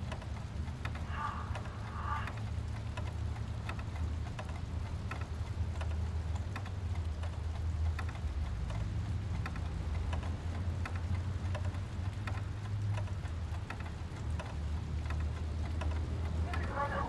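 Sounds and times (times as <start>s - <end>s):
faint light clicks: 0.0s - 17.0s
industrial machinery humming: 0.7s - 3.0s.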